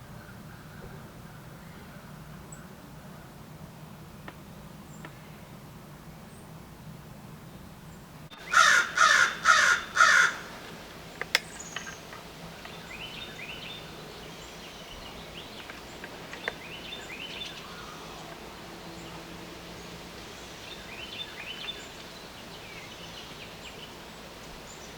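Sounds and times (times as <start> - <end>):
crow cawing: 8.3 - 10.6.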